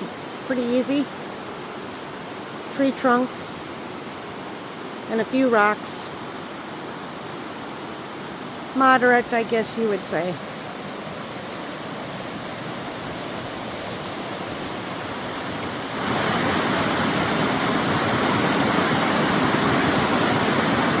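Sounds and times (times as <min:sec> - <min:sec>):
cascading creek water: 0:00.0 - 0:21.0
waterfall rushing: 0:06.2 - 0:21.0.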